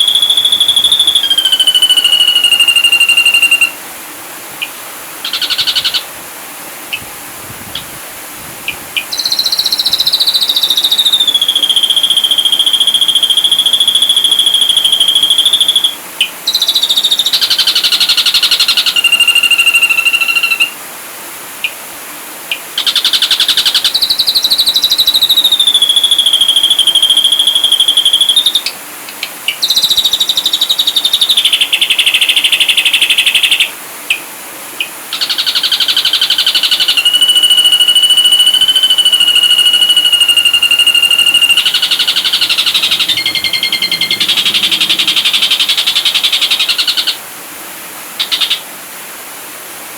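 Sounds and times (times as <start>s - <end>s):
bird whistling and trilling: 0.0s - 3.8s, 4.6s - 6.0s, 9.1s - 20.8s, 22.8s - 28.7s, 29.5s - 33.7s, 35.2s - 47.2s.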